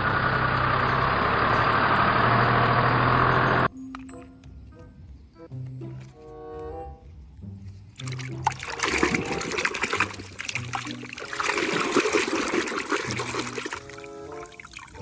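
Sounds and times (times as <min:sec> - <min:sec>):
running water splashing on toy: 0:08.0 - 0:15.0.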